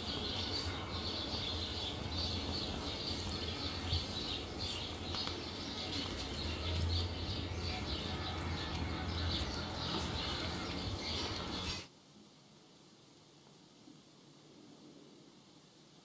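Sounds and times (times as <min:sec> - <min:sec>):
birds chirping: 0:00.0 - 0:11.9
steady low hum: 0:00.0 - 0:16.0.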